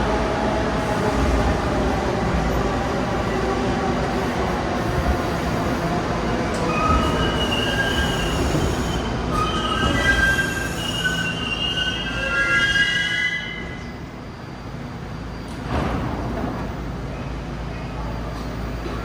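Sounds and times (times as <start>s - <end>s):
low train rumble: 0.0s - 19.0s
train wheels squealing on rails: 4.9s - 15.7s.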